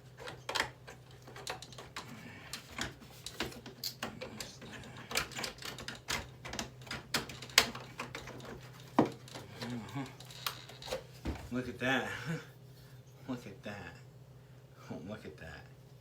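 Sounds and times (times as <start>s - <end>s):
steady low hum: 0.0s - 16.0s
plastic clicks and clacks: 0.2s - 11.0s.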